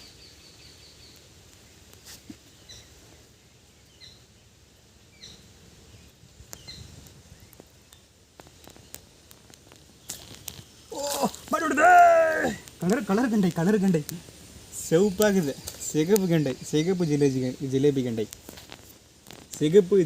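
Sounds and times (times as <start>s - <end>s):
low background noise: 0.0s - 20.0s
faint clicks: 6.4s - 10.7s, 11.4s - 14.4s
bird chirping faintly: 14.7s - 18.4s.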